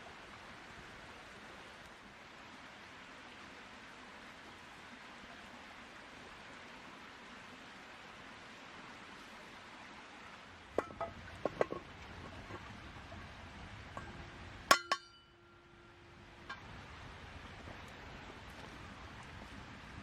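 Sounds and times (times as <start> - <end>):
steady background hiss: 0.0 - 20.0
camp cookware clinking: 10.7 - 17.1.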